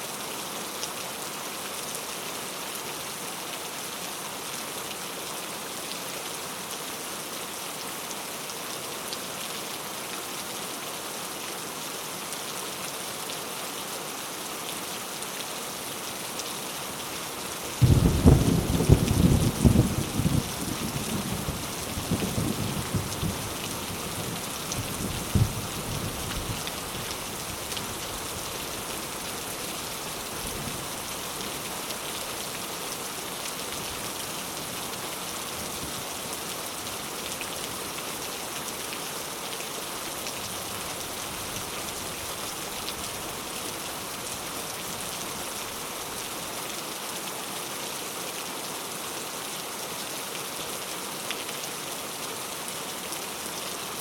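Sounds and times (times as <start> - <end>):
heavy rain falling: 0.3 - 54.0
low rumble of thunder: 17.8 - 23.7, 24.8 - 26.6.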